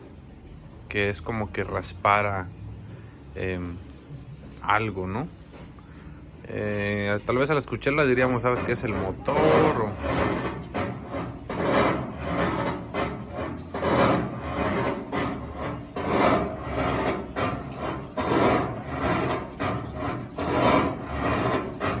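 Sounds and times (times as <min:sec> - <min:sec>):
harsh scraping grinding noise: 0:06.5 - 0:22.0
washing machine agitating: 0:07.9 - 0:22.0.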